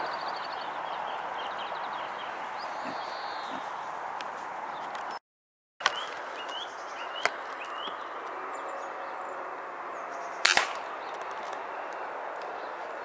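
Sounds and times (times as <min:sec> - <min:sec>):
small bird chirping: 0:00.0 - 0:03.9
outdoor background noise: 0:00.0 - 0:05.2, 0:05.8 - 0:13.0.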